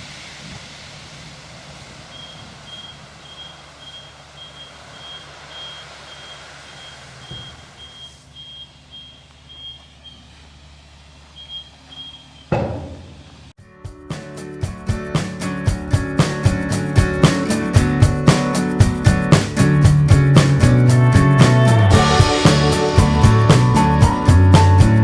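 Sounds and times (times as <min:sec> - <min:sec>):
excavator engine rumble: 0:00.0 - 0:13.6, 0:16.0 - 0:25.0
travel alarm beeping: 0:02.1 - 0:10.2, 0:11.4 - 0:12.5
knocks: 0:12.5 - 0:13.2.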